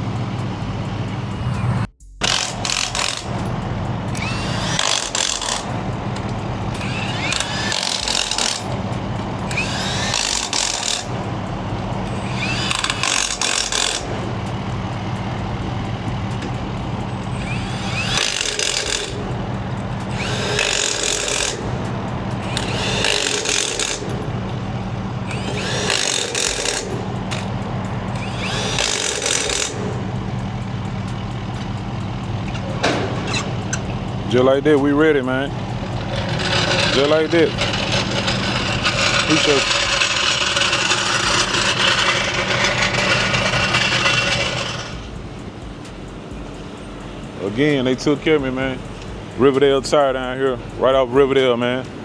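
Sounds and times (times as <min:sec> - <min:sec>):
steady low hum: 0:00.0 - 0:52.0
pneumatic impact wrench whirring: 0:02.2 - 0:03.5, 0:04.1 - 0:11.4, 0:12.0 - 0:14.6, 0:17.1 - 0:19.3, 0:19.9 - 0:21.8, 0:22.4 - 0:30.1, 0:32.4 - 0:33.9, 0:35.8 - 0:45.1.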